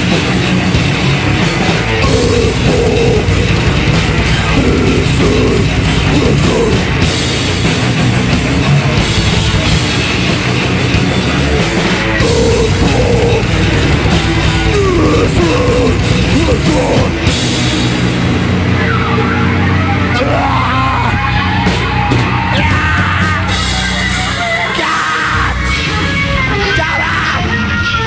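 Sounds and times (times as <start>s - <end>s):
heavy metal band playing: 0.0s - 28.0s.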